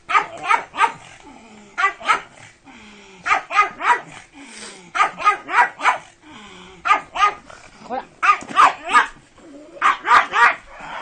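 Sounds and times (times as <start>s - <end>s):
dog barking sharply: 8.2s - 9.2s, 9.8s - 10.6s.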